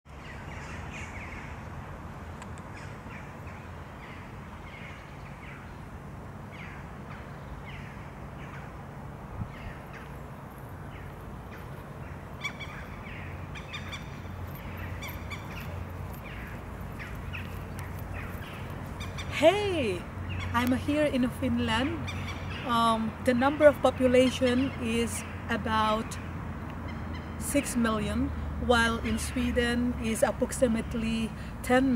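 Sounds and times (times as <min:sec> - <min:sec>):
birds calling: 0:09.4 - 0:28.2.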